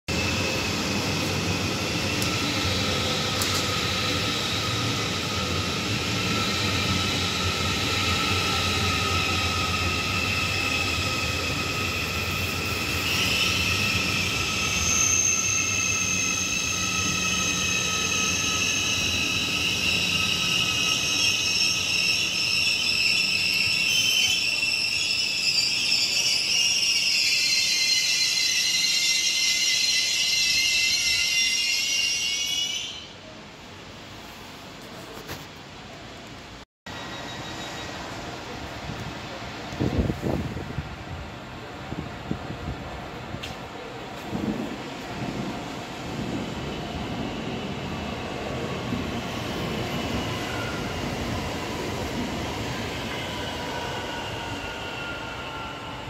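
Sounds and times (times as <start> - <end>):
train running noise: 0.1 - 32.2, 33.2 - 56.0
train brakes whining and squealing: 0.1 - 33.3, 36.9 - 38.6, 46.3 - 56.0.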